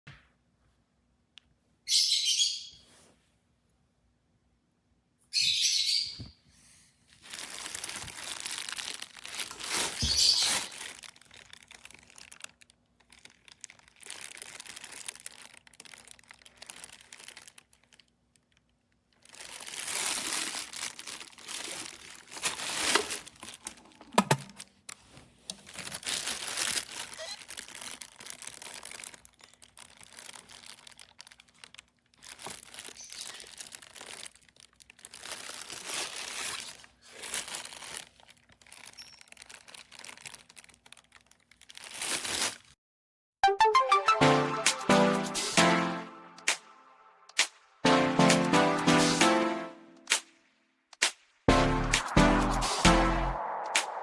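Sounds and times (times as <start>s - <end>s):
wrapping crinkling and rustling: 7.0s - 42.8s.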